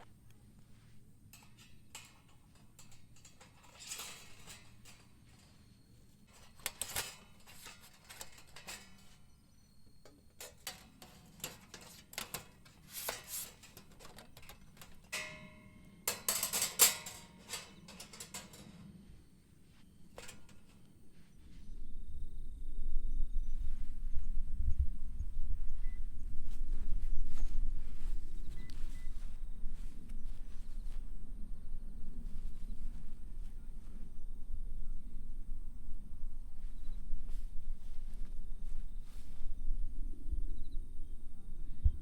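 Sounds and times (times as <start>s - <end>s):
ringing metal clink: 1.4s - 18.9s.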